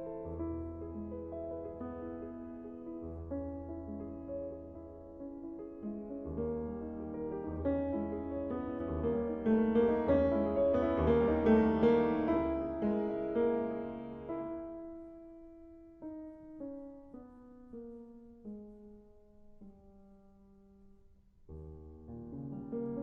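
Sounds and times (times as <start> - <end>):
piano music: 0.0 - 20.9, 21.5 - 23.0.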